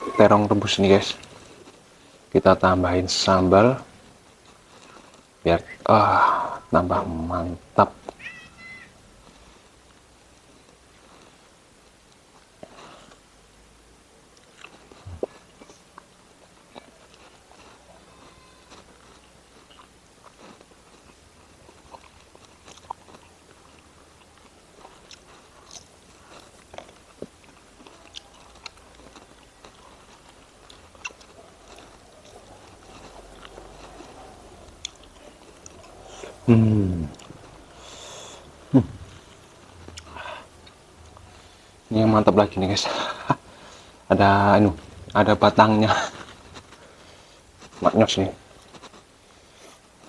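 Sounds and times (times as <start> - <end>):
person humming: 0.0 - 0.5, 36.4 - 37.2
person chewing food: 4.0 - 6.0, 14.4 - 42.0, 44.8 - 47.8, 48.4 - 50.0.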